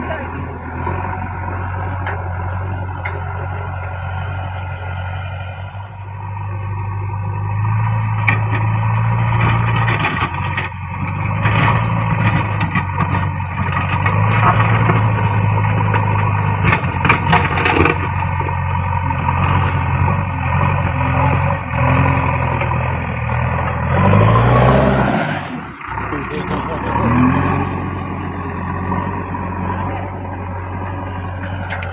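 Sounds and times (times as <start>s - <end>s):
diesel engine running: 0.0s - 31.9s
knocks and scrapes: 8.0s - 30.2s.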